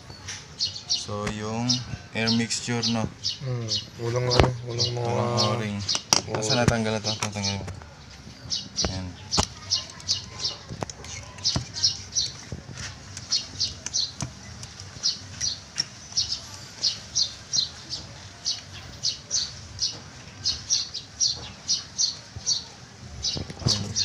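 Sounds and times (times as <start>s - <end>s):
faint clicks of small parts: 9.4s - 16.2s.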